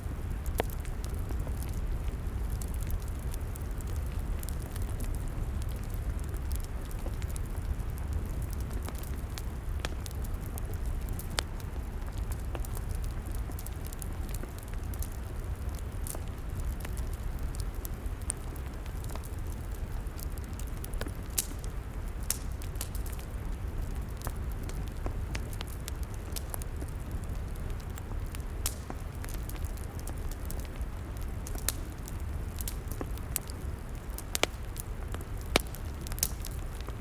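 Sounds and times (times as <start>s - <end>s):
log fire crackling and popping: 0.0s - 37.0s.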